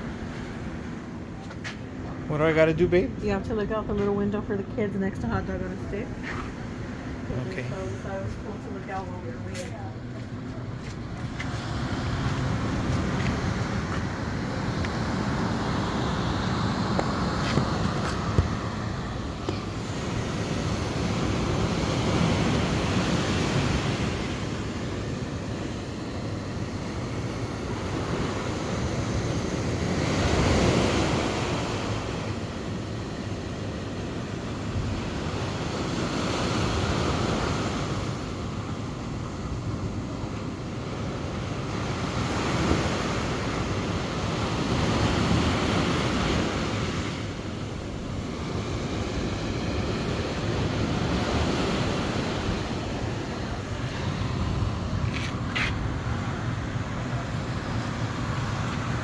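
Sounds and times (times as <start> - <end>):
ocean waves washing in: 0.0 - 3.8, 5.3 - 59.0
wind buffeting microphone: 42.7 - 59.0.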